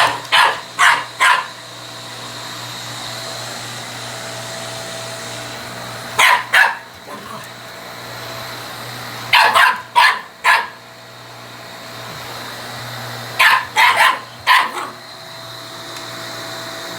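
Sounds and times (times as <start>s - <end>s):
dog barking: 0.0s - 1.6s, 6.2s - 7.4s, 9.3s - 10.8s, 13.4s - 15.0s
vacuum cleaner humming: 0.0s - 16.9s.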